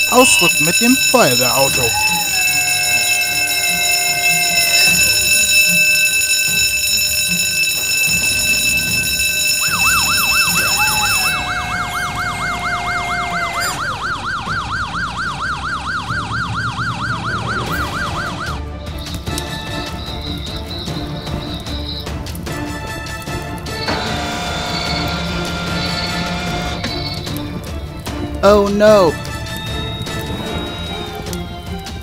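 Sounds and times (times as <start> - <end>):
electronic alarm tone: 0.0 - 18.6
warbling emergency siren: 0.0 - 22.2, 23.7 - 28.0, 29.3 - 32.0.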